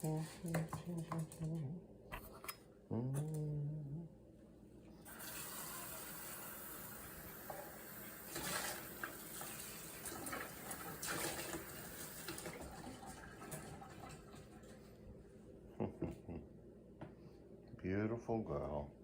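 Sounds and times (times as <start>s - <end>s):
tap water running into sink: 5.1s - 14.7s.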